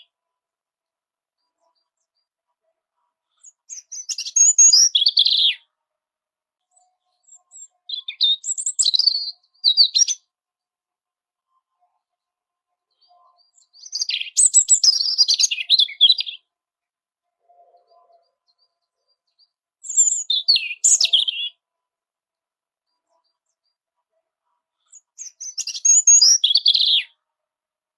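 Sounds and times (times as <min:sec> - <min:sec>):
robin singing: 0:03.3 - 0:05.7, 0:06.8 - 0:10.3, 0:12.9 - 0:16.5, 0:17.8 - 0:21.6, 0:24.8 - 0:27.2.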